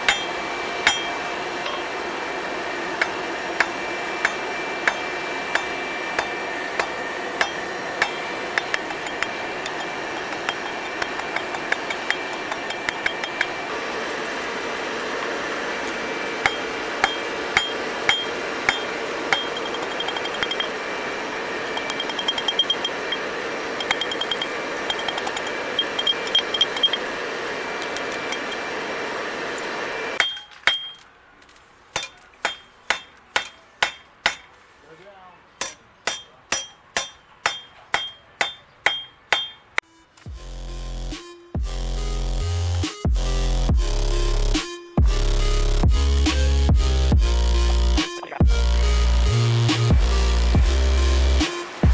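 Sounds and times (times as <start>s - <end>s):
hammer ringing on steel anvil: 0.0s - 1.9s, 3.0s - 13.6s, 16.4s - 20.8s, 30.2s - 31.0s, 32.0s - 34.5s, 35.6s - 39.8s
steady background noise: 0.0s - 40.4s.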